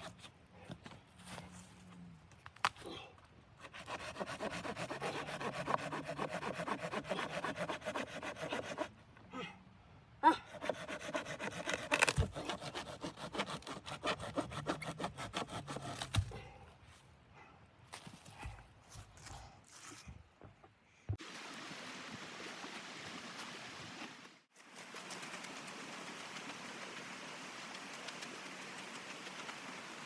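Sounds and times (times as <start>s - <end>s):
wood being sawn by hand: 3.6s - 8.9s, 10.5s - 16.2s.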